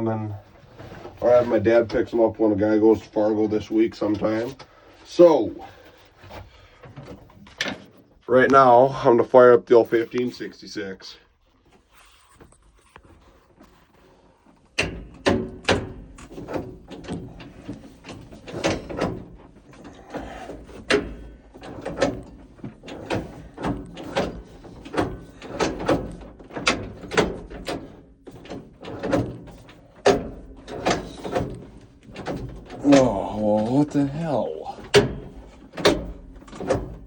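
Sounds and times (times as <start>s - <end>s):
diesel engine cranking with knocks: 14.4s - 37.0s.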